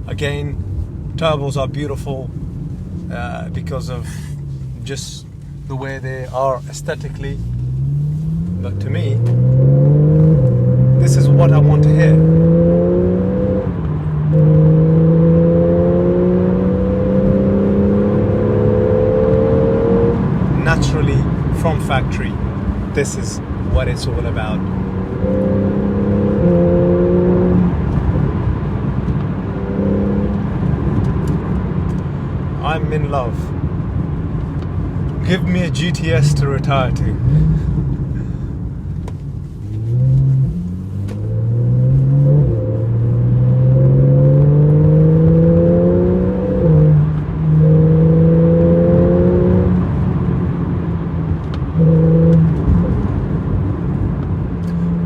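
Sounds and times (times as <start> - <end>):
car engine pulling at steady revs: 0.0 - 55.0
road and wind noise: 0.0 - 55.0.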